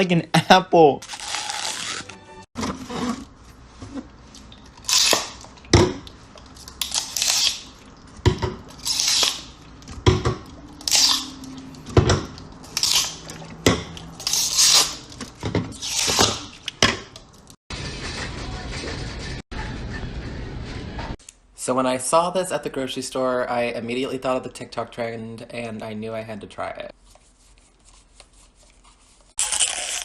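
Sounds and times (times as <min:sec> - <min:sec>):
teeth biting into bottle: 0:29.4 - 0:30.0.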